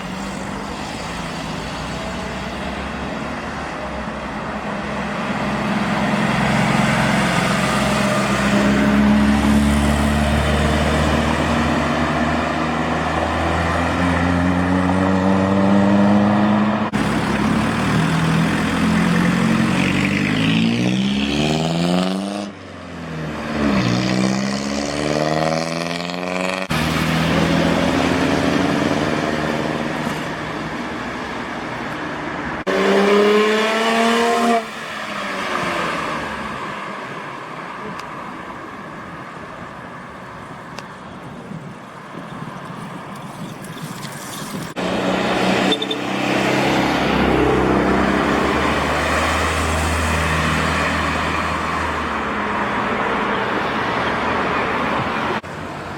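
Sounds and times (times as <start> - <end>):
cars accelerating: 4.9 - 31.0, 32.4 - 38.1, 44.7 - 55.5.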